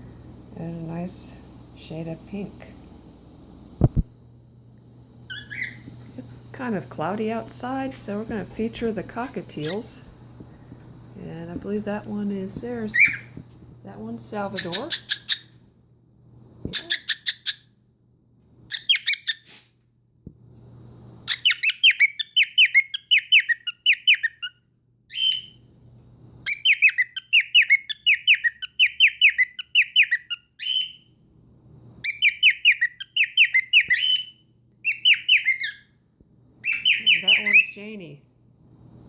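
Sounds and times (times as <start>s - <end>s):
cockatiel whistling chirpy notes: 5.3s - 5.8s, 18.7s - 19.4s, 21.3s - 25.6s, 26.5s - 31.1s, 32.0s - 35.9s, 36.6s - 37.7s.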